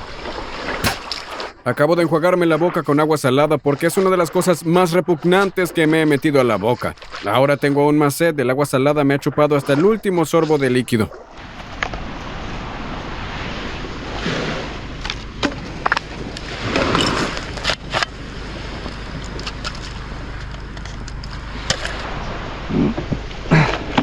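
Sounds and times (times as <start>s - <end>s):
surf washing on beach: 0.0s - 8.4s, 9.0s - 20.8s, 21.4s - 24.0s
wind noise on microphone: 11.4s - 24.0s.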